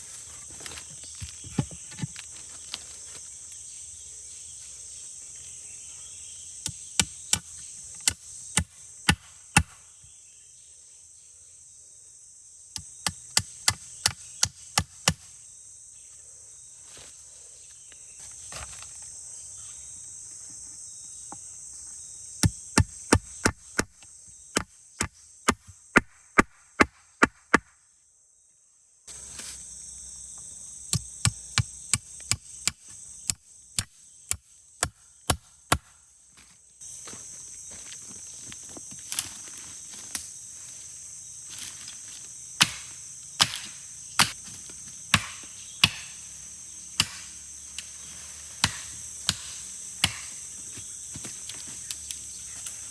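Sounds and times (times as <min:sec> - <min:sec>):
wood chopped with a blade: 0:00.6 - 0:02.5, 0:06.6 - 0:09.8, 0:12.8 - 0:15.3, 0:22.4 - 0:27.7, 0:30.9 - 0:36.0, 0:42.6 - 0:46.2, 0:47.0 - 0:52.1.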